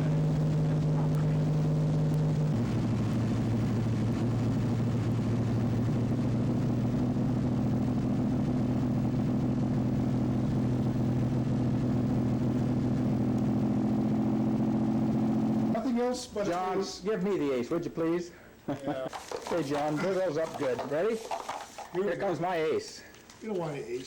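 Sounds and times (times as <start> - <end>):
engine drone: 0.0 - 15.8.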